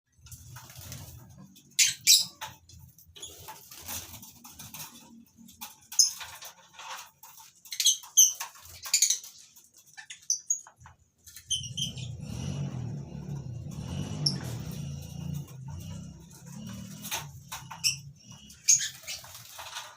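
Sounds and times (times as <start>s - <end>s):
lovebirds chirping: 15.2s - 19.8s.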